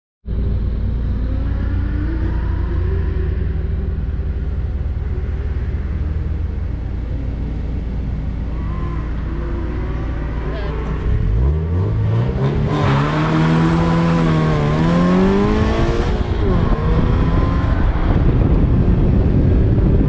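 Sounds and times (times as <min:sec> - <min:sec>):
car engine idling: 0:00.3 - 0:12.1.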